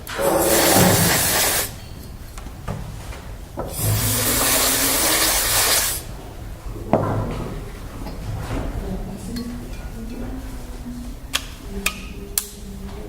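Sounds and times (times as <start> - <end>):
compressed air hissing: 0.0 - 2.1, 3.6 - 6.1.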